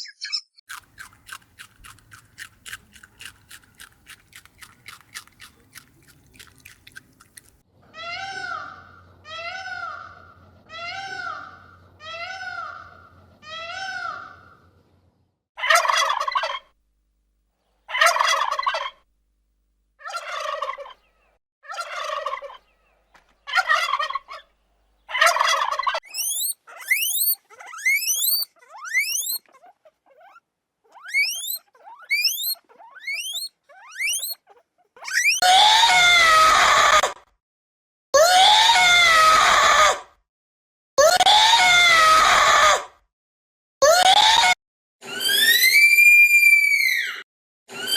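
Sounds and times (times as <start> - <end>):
animal pitched calls: 0.7 - 7.6, 25.1 - 37.1
long harsh animal calls: 26.0 - 37.1
quick rising chirps: 26.1 - 29.4, 31.0 - 34.4, 35.1 - 35.4.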